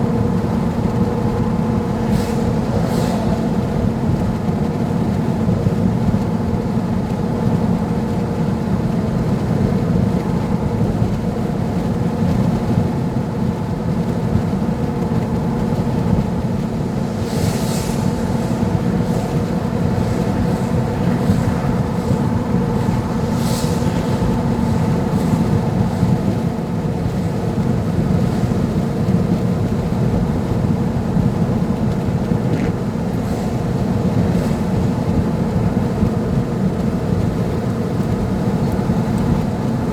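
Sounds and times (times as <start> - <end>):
vehicle driving on highway: 0.0 - 8.5, 13.4 - 39.9
brief hissing swishes: 1.9 - 4.4, 16.4 - 27.5.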